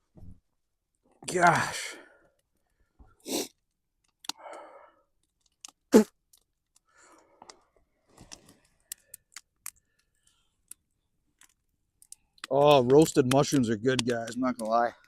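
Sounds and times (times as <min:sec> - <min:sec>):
short breaths: 0:04.3 - 0:05.2, 0:06.8 - 0:07.7
sharp clicks: 0:11.4 - 0:14.9.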